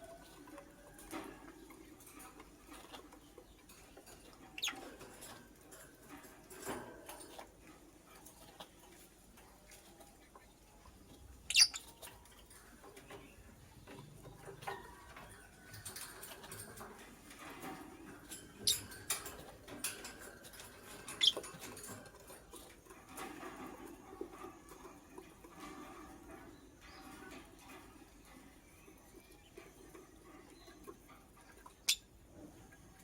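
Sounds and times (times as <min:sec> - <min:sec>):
bird scratching and rustling: 0:00.0 - 0:31.9
bird clicks and peeps: 0:11.4 - 0:12.3, 0:15.7 - 0:22.2, 0:31.6 - 0:32.1.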